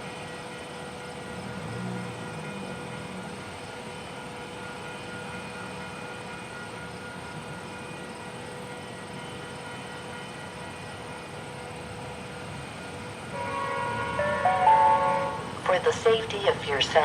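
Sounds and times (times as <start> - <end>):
steady tonal hum: 12.5 - 17.0.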